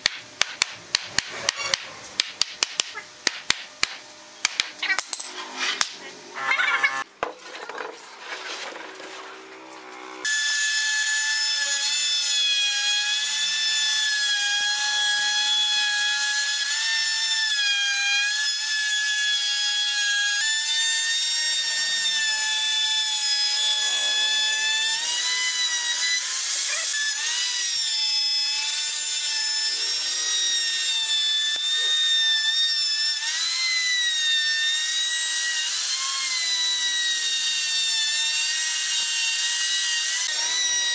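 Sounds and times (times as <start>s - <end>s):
electric router whining: 20.8s - 40.9s.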